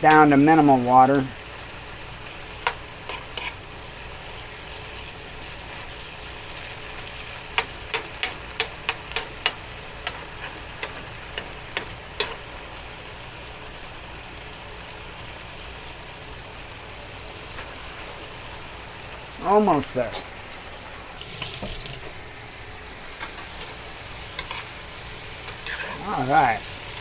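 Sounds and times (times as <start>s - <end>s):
vegetables sizzling in a frying pan: 0.0s - 27.0s
utensil knocking against pan: 7.5s - 12.5s.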